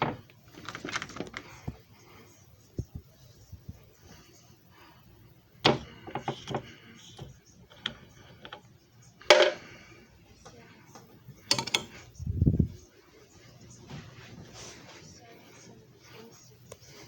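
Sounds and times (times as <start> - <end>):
sharp clicks and knocks: 11.0 - 12.0.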